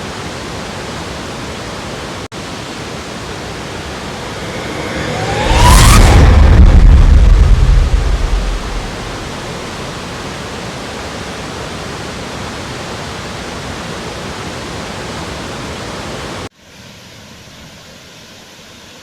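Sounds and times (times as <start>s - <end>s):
waterfall rushing: 0.0s - 16.5s
low rumble: 3.2s - 10.0s.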